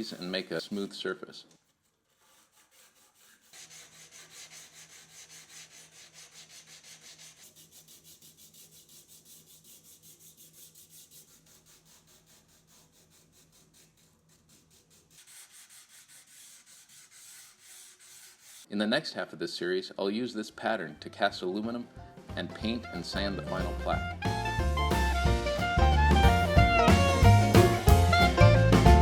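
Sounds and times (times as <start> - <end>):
sandpaper rubbing back and forth: 0.0 - 0.8, 1.6 - 18.7.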